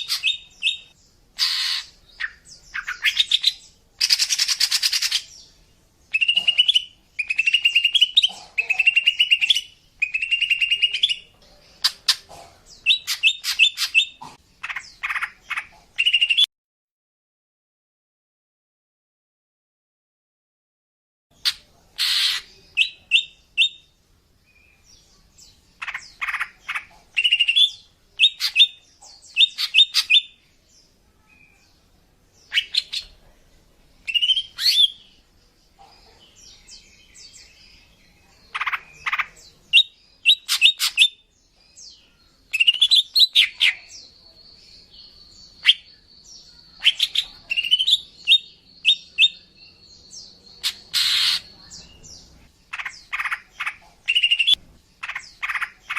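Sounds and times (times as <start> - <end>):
bird chirping and whistling: 6.2 - 8.2, 42.6 - 43.6, 54.1 - 54.6.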